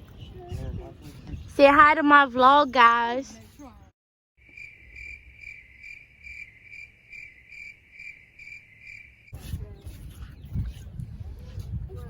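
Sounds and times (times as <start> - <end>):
cricket chirping: 4.4 - 9.3.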